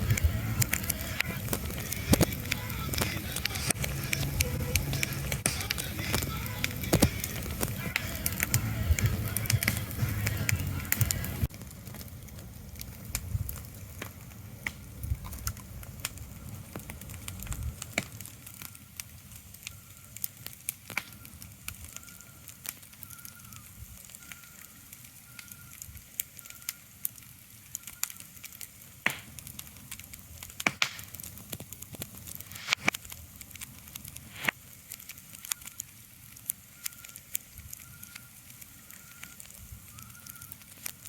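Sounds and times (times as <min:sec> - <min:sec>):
low rumble: 0:00.0 - 0:17.9
crackling clicks and pops: 0:00.0 - 0:41.0.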